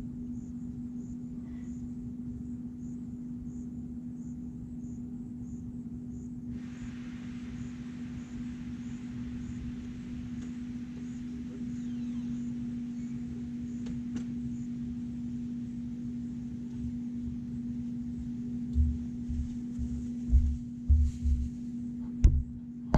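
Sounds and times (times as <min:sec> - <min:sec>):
low hum with rumble: 0:00.0 - 0:22.9
dull low thumps: 0:18.7 - 0:22.9.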